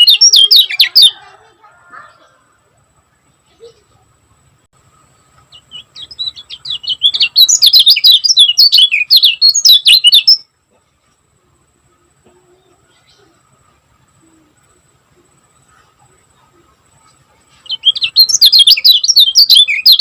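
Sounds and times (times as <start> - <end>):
songbird singing high chirps: 0.0 - 1.4, 4.8 - 10.6, 11.6 - 20.0.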